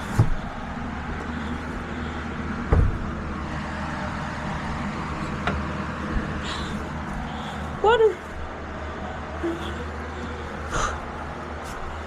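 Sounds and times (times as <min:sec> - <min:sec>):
dull thumps: 0:00.0 - 0:01.4, 0:02.6 - 0:03.3.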